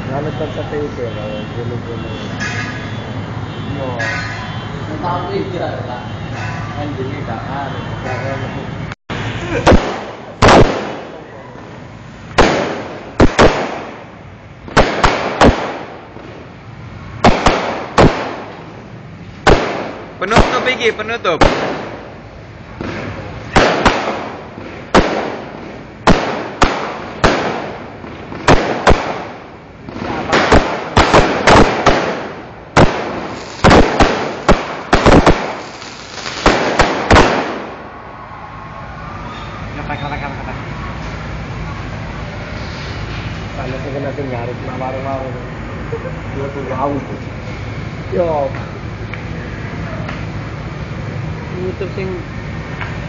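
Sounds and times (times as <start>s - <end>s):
fireworks bangs echoing: 9.2s - 38.2s.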